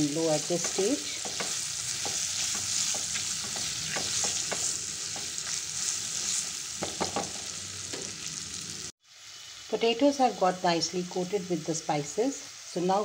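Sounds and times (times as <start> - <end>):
food sizzling in oil: 0.0 - 13.0
spatula stirring and scraping: 0.4 - 6.9.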